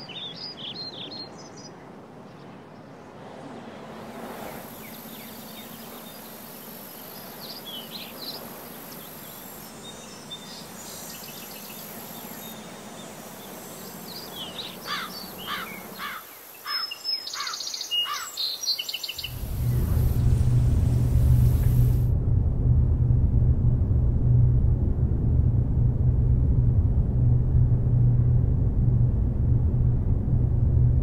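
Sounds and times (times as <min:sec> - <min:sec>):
steady background hiss: 0:00.0 - 0:22.1
birds chirping: 0:04.5 - 0:20.2
loud low rumble: 0:19.2 - 0:31.0.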